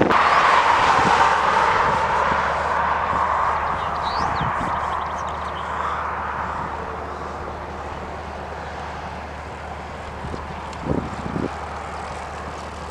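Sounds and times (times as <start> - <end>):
airliner engine rush: 0.0 - 12.9.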